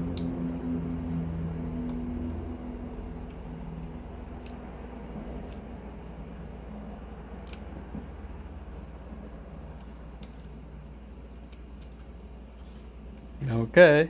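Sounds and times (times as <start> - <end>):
computer keyboard keys clicking: 0.0 - 6.3, 7.0 - 8.1, 9.6 - 10.6
steady low hum: 0.0 - 14.0.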